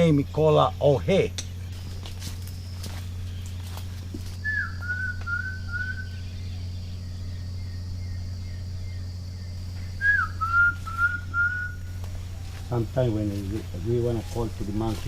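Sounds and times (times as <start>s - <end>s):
steady low hum: 0.0s - 15.0s
person whistling: 4.5s - 6.0s, 10.0s - 11.8s.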